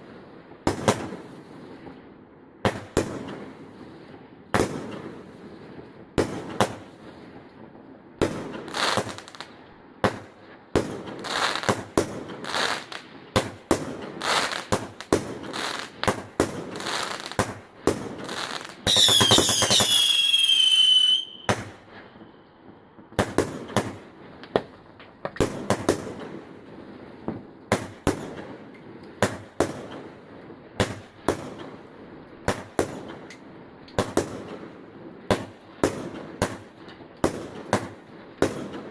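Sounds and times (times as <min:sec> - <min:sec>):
fireworks bangs and crackles: 0:00.0 - 0:38.9
whistling firework: 0:10.1 - 0:22.4.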